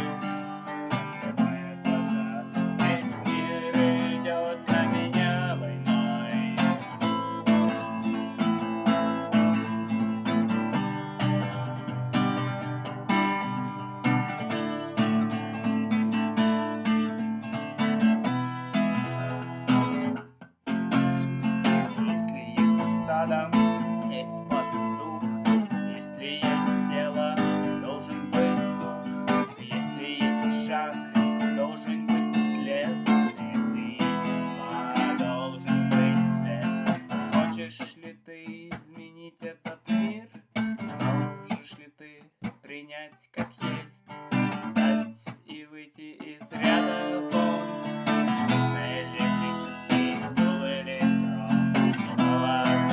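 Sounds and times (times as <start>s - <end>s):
acoustic guitar strumming: 0.0s - 42.7s, 43.4s - 52.9s.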